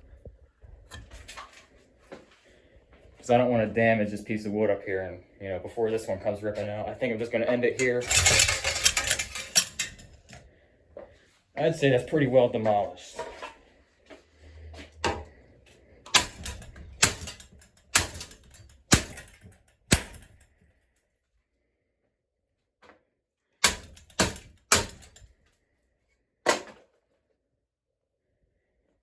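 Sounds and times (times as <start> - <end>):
sharp bangs of fan being smashed: 8.0 - 10.0, 16.1 - 20.4, 23.6 - 25.2.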